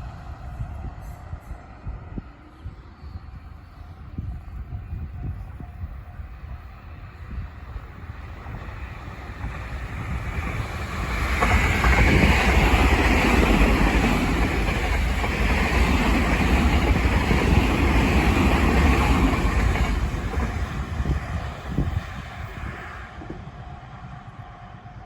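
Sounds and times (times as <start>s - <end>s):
electric train passing: 0.0s - 25.0s.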